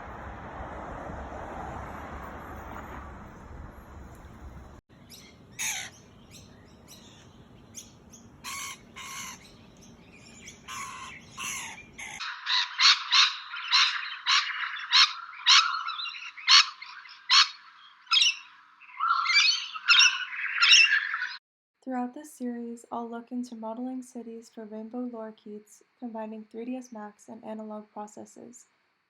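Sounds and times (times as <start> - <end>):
lorikeets squawking: 5.0 - 21.4.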